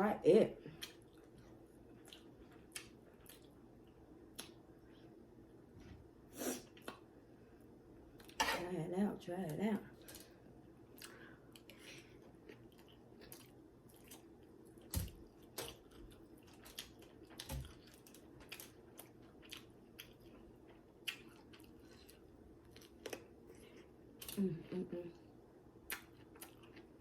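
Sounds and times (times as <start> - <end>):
chewing and crunching food: 0.6 - 5.2, 9.9 - 24.8, 25.8 - 27.0.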